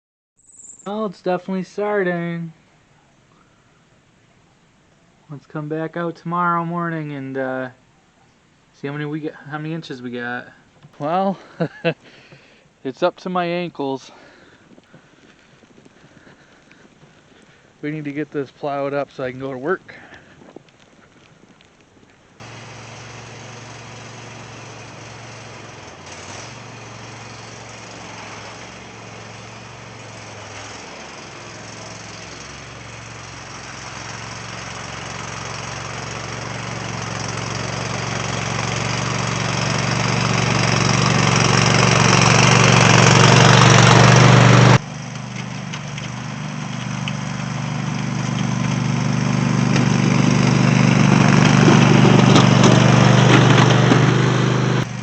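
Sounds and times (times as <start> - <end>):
lawn tractor engine running: 22.4 - 55.0.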